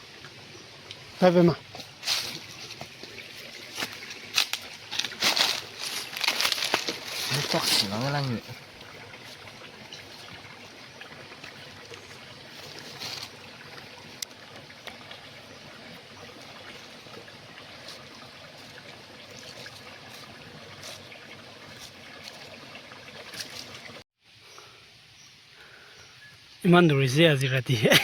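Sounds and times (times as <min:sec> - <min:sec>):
water rushing in a stream: 0:00.0 - 0:24.1
small splashes and knocks: 0:01.6 - 0:15.4, 0:16.2 - 0:24.0.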